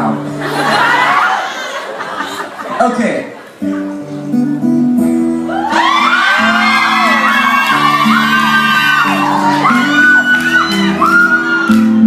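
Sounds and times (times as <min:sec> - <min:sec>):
guitar low chords: 0:03.6 - 0:05.8
guitar high lead line: 0:03.6 - 0:12.0.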